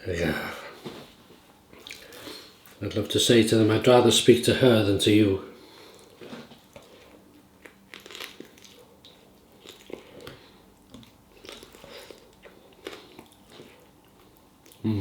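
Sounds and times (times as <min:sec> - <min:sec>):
person chewing crisp food: 0:01.8 - 0:02.8, 0:05.8 - 0:14.8.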